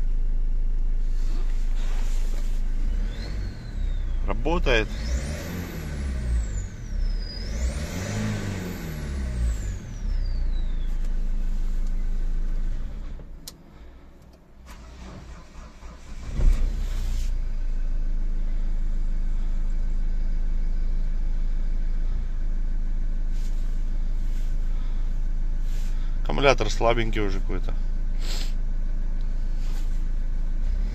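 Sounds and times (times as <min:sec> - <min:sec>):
diesel engine revving: 0:01.0 - 0:14.0, 0:14.6 - 0:30.9
engine starting burst: 0:14.6 - 0:17.2.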